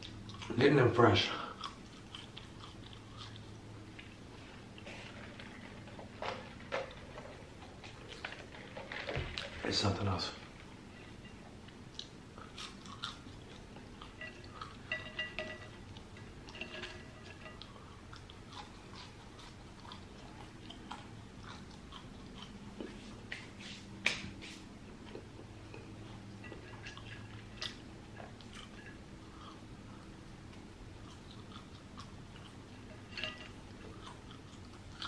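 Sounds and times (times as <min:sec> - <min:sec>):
person chewing fries: 0:00.0 - 0:08.8, 0:10.6 - 0:23.4, 0:24.8 - 0:35.0.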